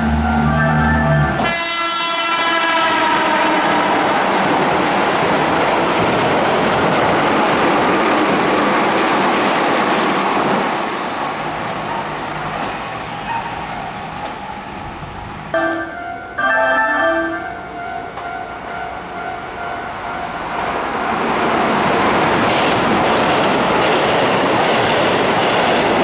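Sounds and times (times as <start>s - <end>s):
train warning horn: 0.0s - 4.2s, 15.5s - 20.4s
train rushing past: 0.0s - 26.0s.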